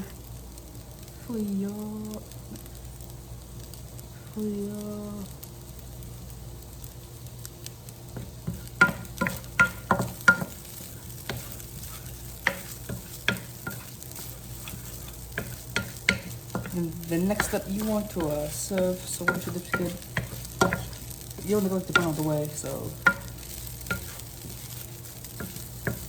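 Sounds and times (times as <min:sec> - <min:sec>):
faint sizzle: 0:00.0 - 0:26.0
spatula scraping a pan: 0:08.2 - 0:26.0.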